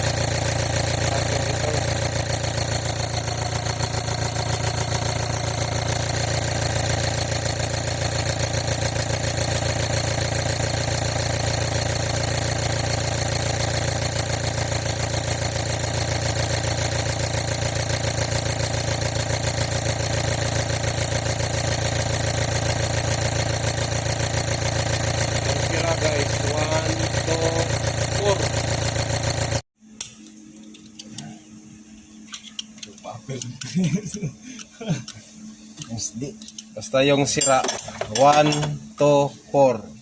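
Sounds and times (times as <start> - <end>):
engine idling: 0.0 - 29.6.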